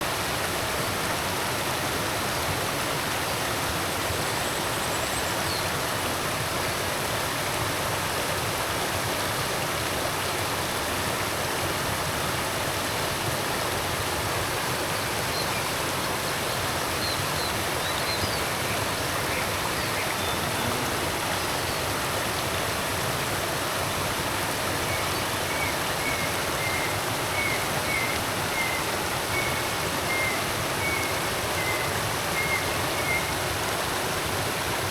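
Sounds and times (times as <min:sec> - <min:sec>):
creek water flowing over rocks: 0:00.0 - 0:34.9
faint bird chirps: 0:17.0 - 0:22.0, 0:24.9 - 0:33.3.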